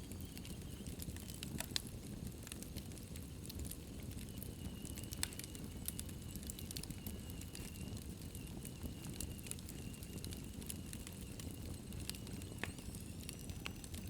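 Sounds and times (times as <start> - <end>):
fire crackling and popping: 0.0 - 14.0
low rumble of flames: 0.0 - 14.0
faint high whistle: 4.4 - 14.0.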